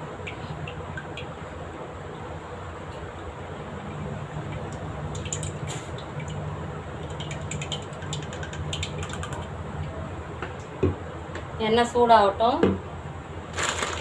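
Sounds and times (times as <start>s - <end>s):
gas burner hum: 0.0s - 7.2s
oil crackling: 13.5s - 14.0s.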